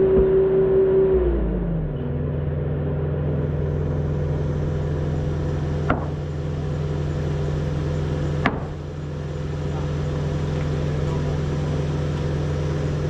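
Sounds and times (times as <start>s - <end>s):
engine idling: 1.5s - 13.0s
sharp knocks: 5.8s - 6.2s, 8.4s - 8.8s.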